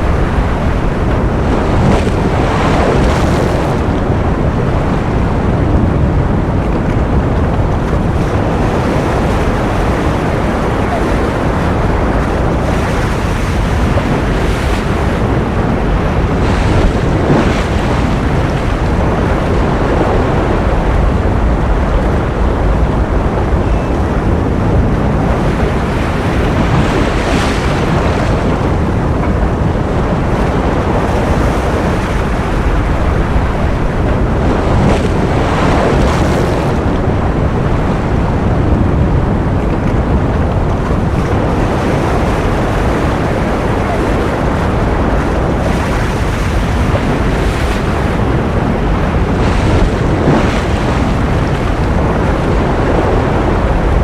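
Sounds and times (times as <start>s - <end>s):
ocean surf rushing: 0.0s - 54.0s.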